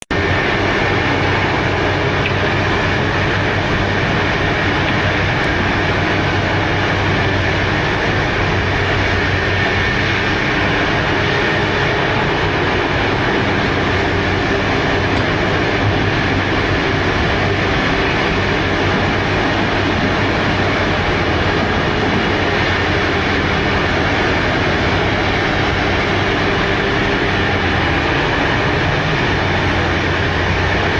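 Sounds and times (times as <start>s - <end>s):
excavator diesel engine droning: 0.0s - 30.9s.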